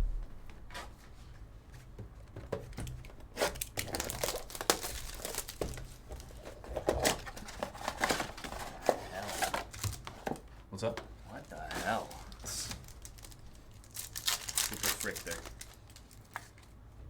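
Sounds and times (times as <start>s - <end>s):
wrapper tearing and crinkling: 3.4s - 10.3s, 11.4s - 16.7s.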